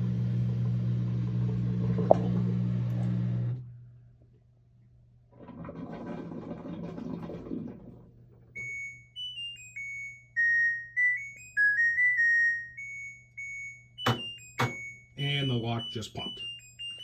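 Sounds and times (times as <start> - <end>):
washing machine drum running: 0.0 - 3.6, 14.0 - 16.3
beeping end-of-cycle melody: 8.6 - 17.0.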